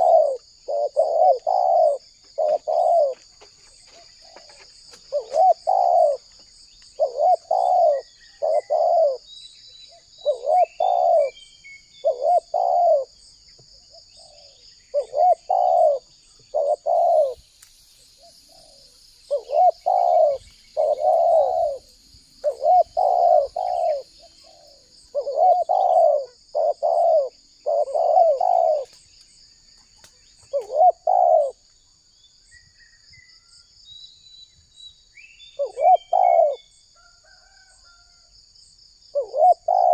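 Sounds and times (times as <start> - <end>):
dove cooing: 0.0 - 6.4, 7.0 - 9.3, 9.9 - 13.2, 13.8 - 17.4, 18.2 - 29.0, 30.4 - 31.6, 35.6 - 37.7, 39.1 - 39.9
small birds chirping: 0.0 - 37.6, 39.1 - 39.9.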